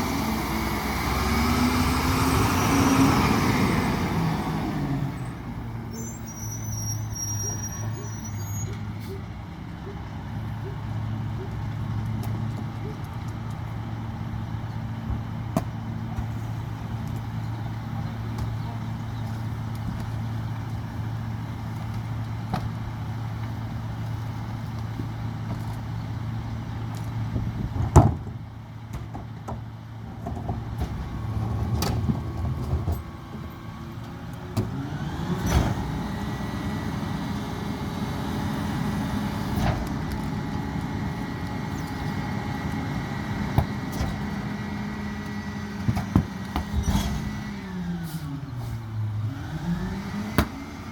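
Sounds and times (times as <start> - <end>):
diesel engine idling and revving: 0.0 - 50.9
hydraulic packer whining: 27.6 - 50.9.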